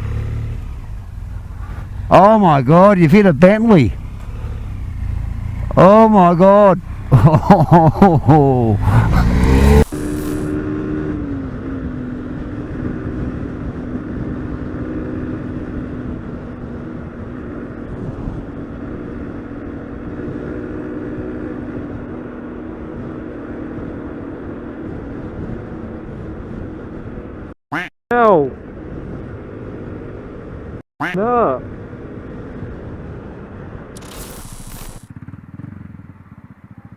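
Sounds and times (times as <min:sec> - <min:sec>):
motorcycle engine running: 0:00.0 - 0:26.5, 0:34.0 - 0:36.9
rushing wind noise: 0:08.6 - 0:27.5.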